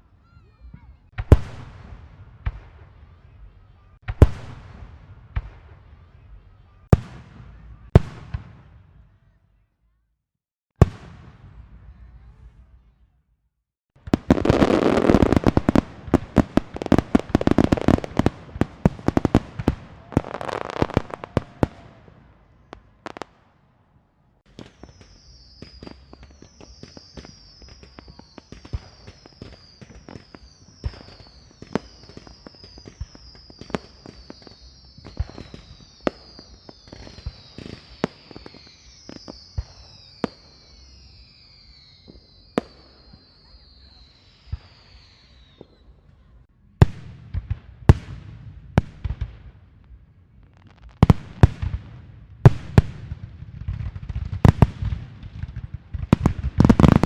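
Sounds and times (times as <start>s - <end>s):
firecrackers banging: 14.0s - 22.0s, 50.6s - 57.0s
fireworks popping: 14.0s - 22.0s, 24.4s - 45.8s, 50.4s - 57.0s
high falling whistles: 24.7s - 45.9s.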